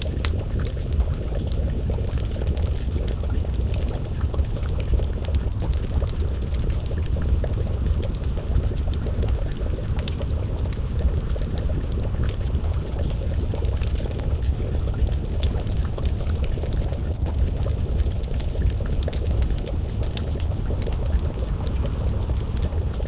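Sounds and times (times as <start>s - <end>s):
stew bubbling in a pot: 0.0s - 23.0s
wood fire crackling: 0.0s - 23.0s.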